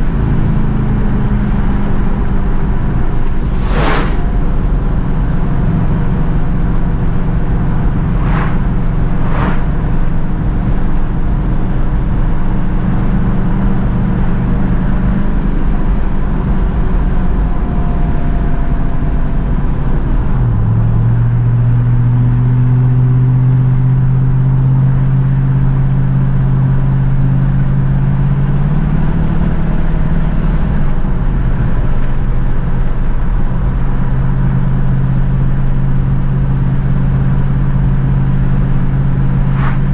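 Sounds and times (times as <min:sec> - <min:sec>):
car engine droning: 0:00.0 - 0:39.9
brief sharp sounds: 0:03.3 - 0:04.4, 0:08.1 - 0:09.8, 0:39.5 - 0:39.9.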